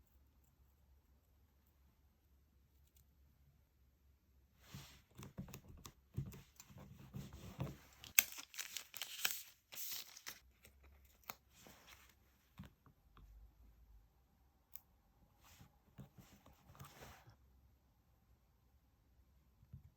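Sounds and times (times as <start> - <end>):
paper tearing and crinkling: 7.9 - 10.4.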